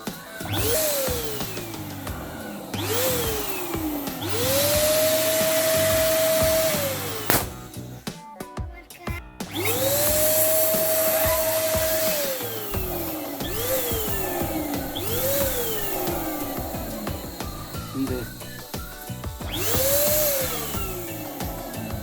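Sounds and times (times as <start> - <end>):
balloon pump motor whining: 0.0 - 8.1, 9.4 - 22.0
background music: 0.0 - 22.0
balloon bursting: 0.5 - 8.1.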